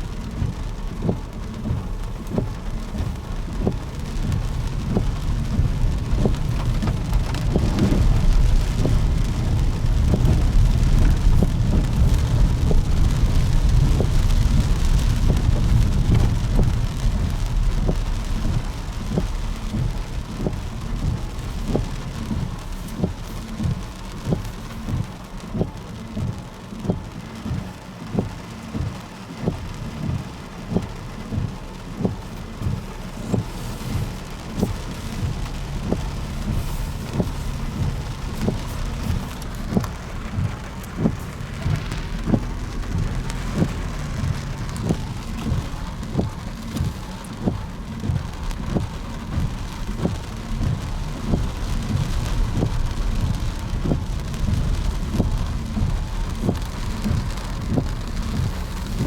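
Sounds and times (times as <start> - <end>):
steady low rumble: 0.0 - 59.0
footsteps walking: 32.0 - 48.2.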